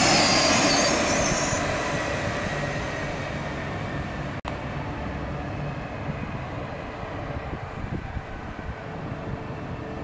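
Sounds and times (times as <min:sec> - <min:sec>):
electric train rumbling: 0:00.0 - 0:10.0
wind noise on microphone: 0:06.0 - 0:10.0.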